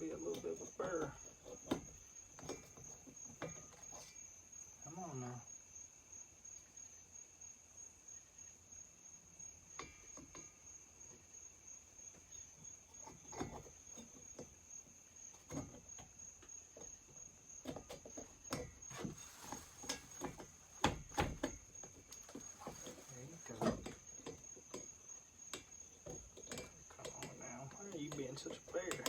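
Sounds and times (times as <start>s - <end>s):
small metal knocks and taps: 0.0s - 4.3s, 9.7s - 11.3s, 12.0s - 29.0s
crickets chirping: 0.0s - 29.0s.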